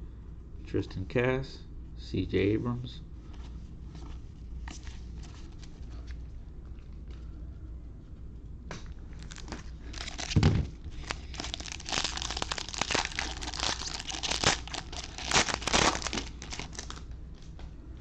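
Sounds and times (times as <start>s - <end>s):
plastic wrapper crinkling: 9.1s - 17.1s
thump: 10.4s - 10.7s.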